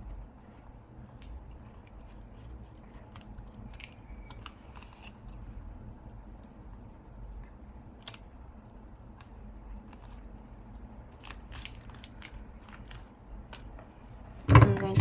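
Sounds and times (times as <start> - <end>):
low steady hum: 0.0 - 15.0
paper and tape crackling: 0.4 - 5.6, 8.0 - 8.4, 9.1 - 14.2.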